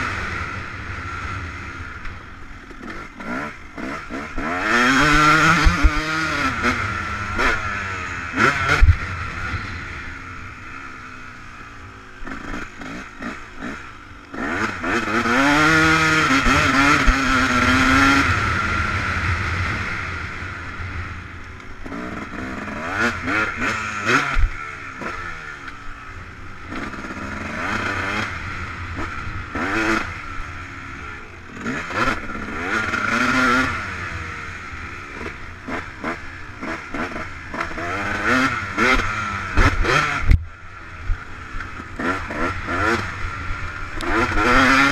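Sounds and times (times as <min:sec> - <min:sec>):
motocross bike engine revving: 0:00.0 - 0:44.9.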